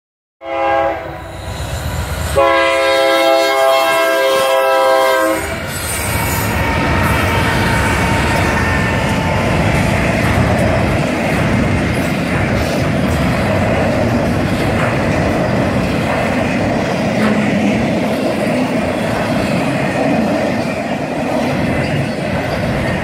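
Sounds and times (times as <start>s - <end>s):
train horn blasts: 0.4s - 1.6s, 2.2s - 9.8s
train wheels rumbling on rails: 1.1s - 23.0s.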